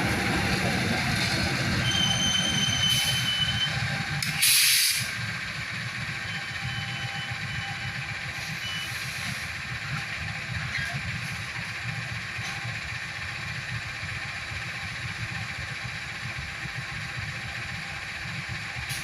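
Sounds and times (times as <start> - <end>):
heavy vehicle rumbling: 0.0 - 19.0
high squeal: 1.8 - 3.8
air brake hiss: 4.2 - 5.2, 8.4 - 9.5.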